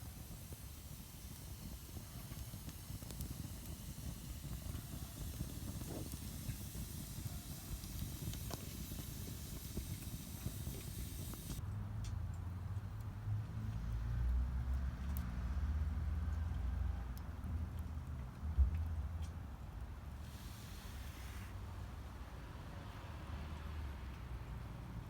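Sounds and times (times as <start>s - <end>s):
burning wood crackling: 0.0s - 11.6s, 20.1s - 22.0s
wood fire burning: 0.0s - 11.6s, 20.1s - 22.6s.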